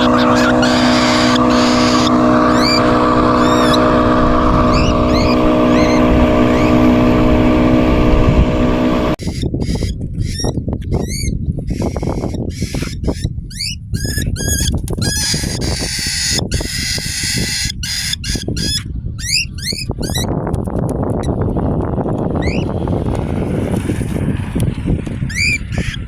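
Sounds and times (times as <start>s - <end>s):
cockatiel chirping: 0.0s - 6.9s, 9.2s - 20.3s, 22.4s - 22.7s, 25.3s - 26.0s
wind rumble on microphone: 0.0s - 26.0s.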